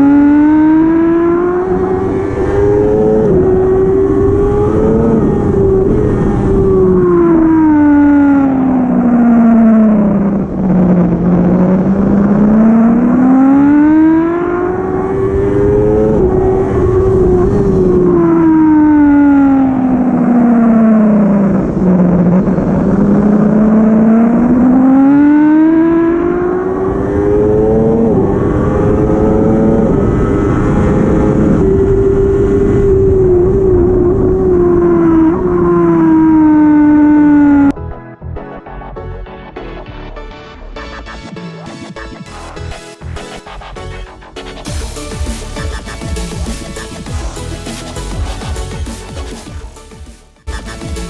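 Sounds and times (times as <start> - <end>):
superbike engine revving through gears: 0.0 - 37.7.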